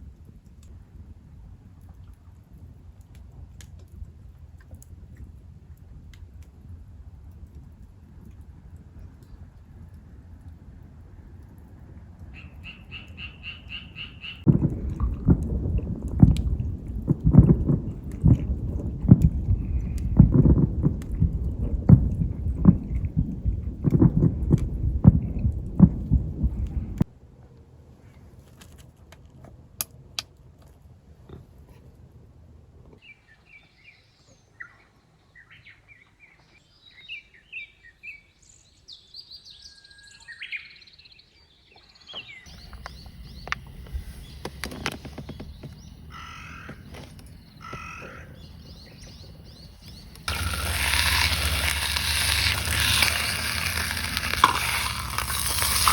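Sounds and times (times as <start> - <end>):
small birds chirping: 12.4 - 14.5, 41.7 - 54.2
loud low thumping and rumble: 14.5 - 27.1
loud steady sizzle: 48.4 - 55.9.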